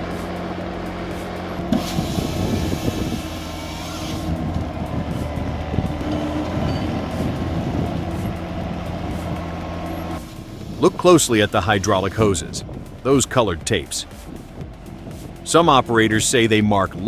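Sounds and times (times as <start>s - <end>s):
heavy diesel engine running: 0.0s - 17.0s
hiss: 1.1s - 4.4s.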